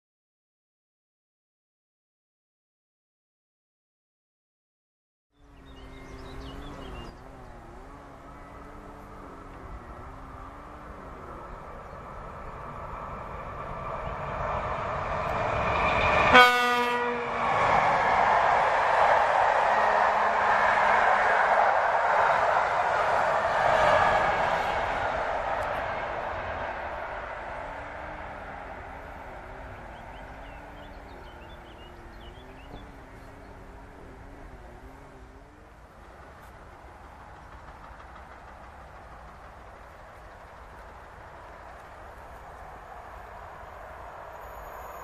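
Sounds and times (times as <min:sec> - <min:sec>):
small birds chirping: 0:05.4 - 0:12.7, 0:29.0 - 0:42.6
electric train rolling: 0:05.5 - 0:45.0
train horn blast: 0:16.2 - 0:17.5.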